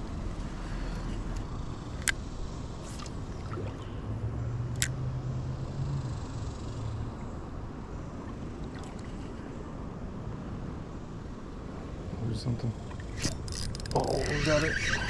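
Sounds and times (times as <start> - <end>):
moving water: 2.7 - 6.1, 6.8 - 10.9, 11.5 - 15.0
breeze: 12.1 - 15.0.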